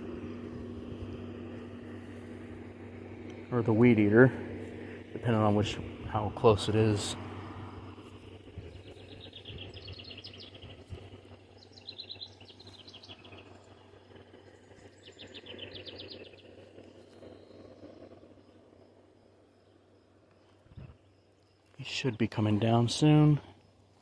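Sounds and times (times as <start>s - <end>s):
low steady hum: 0.0s - 24.0s
songbird trilling: 8.6s - 13.9s, 14.5s - 17.9s.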